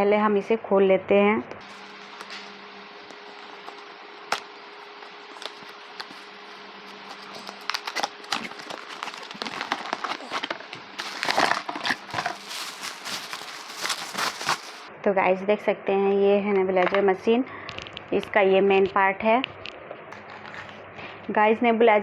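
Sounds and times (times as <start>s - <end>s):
faint steady hum: 0.0s - 22.0s
knocks and crinkling packaging: 6.9s - 14.9s.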